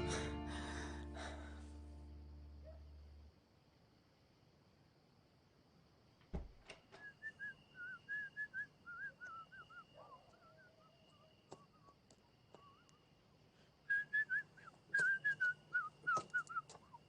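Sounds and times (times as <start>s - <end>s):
thump: 6.3s - 6.8s
faint whistled melody: 6.9s - 13.0s, 13.8s - 17.0s.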